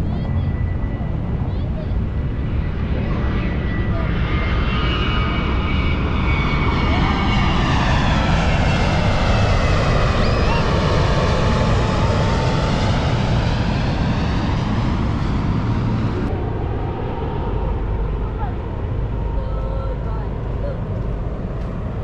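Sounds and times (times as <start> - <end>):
airplane passing overhead: 0.0 - 22.0.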